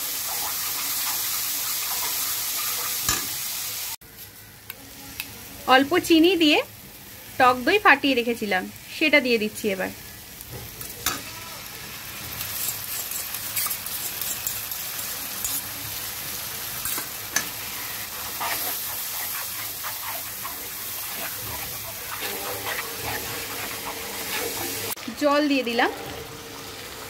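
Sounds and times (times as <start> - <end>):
paste sizzling in a pan: 0.0 - 4.0, 5.8 - 27.0
metal spatula scraping a pan: 12.4 - 14.8, 16.8 - 25.0.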